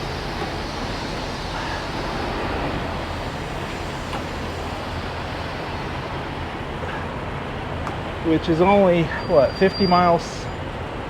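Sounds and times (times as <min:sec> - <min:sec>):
truck engine and tyre drone: 0:00.0 - 0:11.0.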